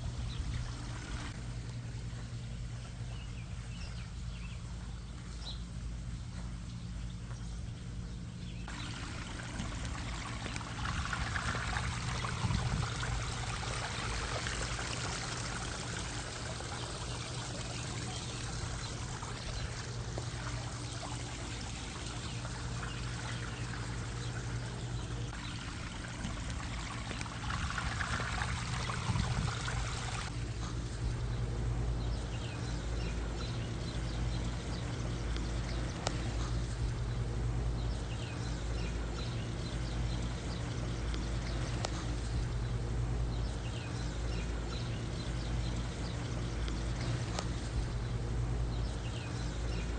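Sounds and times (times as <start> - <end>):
low steady hum: 0.0 - 49.9
waterfall and fountain splashing: 8.7 - 30.6.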